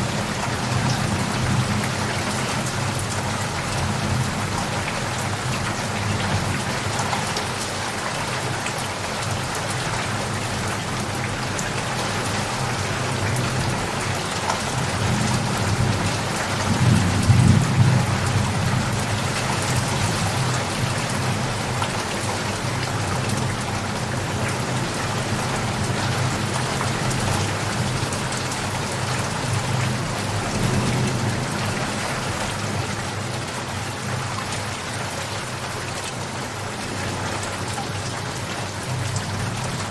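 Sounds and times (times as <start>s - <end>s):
steady rain falling: 0.0s - 39.9s
low rumble of thunder: 15.0s - 21.8s.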